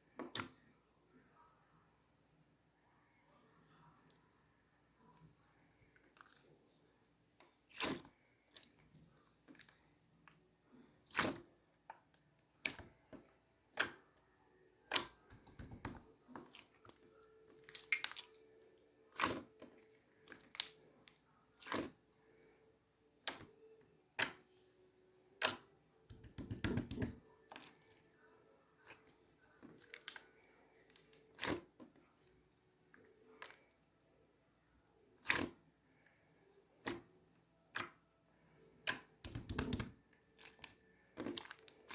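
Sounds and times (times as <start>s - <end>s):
slime squelching crackles: 19.1s - 20.9s, 25.4s - 33.8s, 38.8s - 41.9s.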